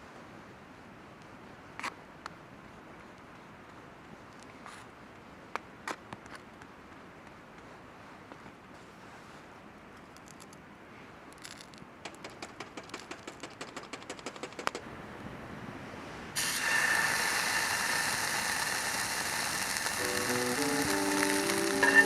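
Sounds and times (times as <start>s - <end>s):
rapid sharp clicks: 12.0s - 14.8s, 19.5s - 22.0s
food sizzling in a hot pan: 16.4s - 22.0s.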